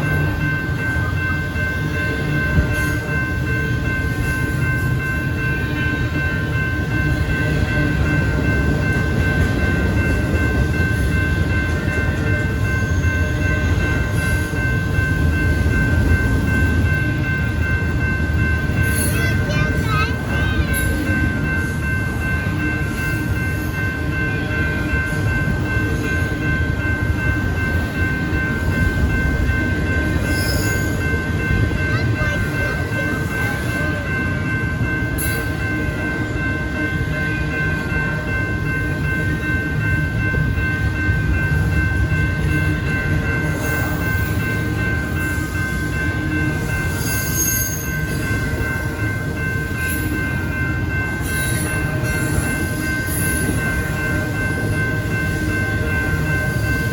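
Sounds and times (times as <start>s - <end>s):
crossing bell ringing tone: 0.0s - 56.9s
train rumbling on rails: 0.0s - 56.9s.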